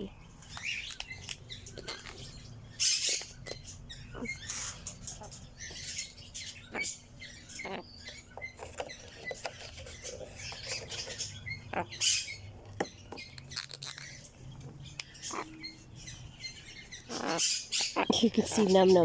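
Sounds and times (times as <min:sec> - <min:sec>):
birds chirping: 0:00.0 - 0:19.0
small clicks and crackles: 0:00.4 - 0:02.3.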